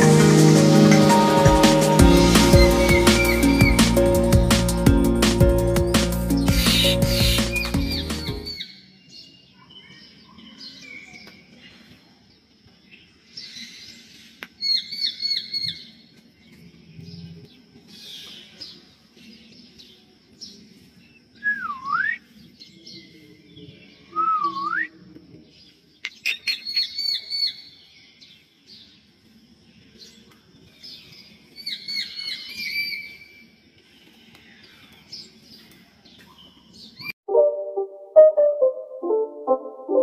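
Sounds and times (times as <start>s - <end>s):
bird short high notes: 0.0s - 8.6s
birds swooping whistles: 2.2s - 4.3s, 5.8s - 8.8s, 31.6s - 33.5s.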